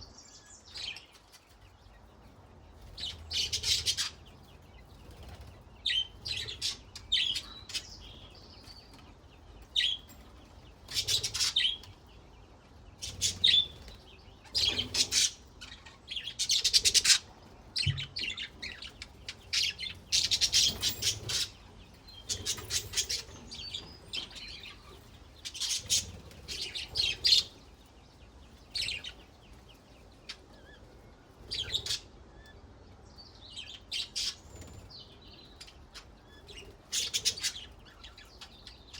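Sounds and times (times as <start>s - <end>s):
budgerigars chirping: 2.8s - 8.7s, 10.8s - 12.2s, 12.8s - 27.9s, 31.4s - 32.5s, 33.5s - 38.9s.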